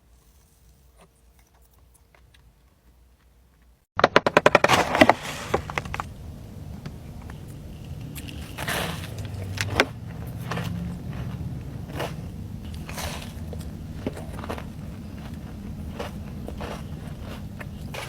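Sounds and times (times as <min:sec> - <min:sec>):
cookie crunching: 0:04.3 - 0:18.0
low hum: 0:04.8 - 0:18.0.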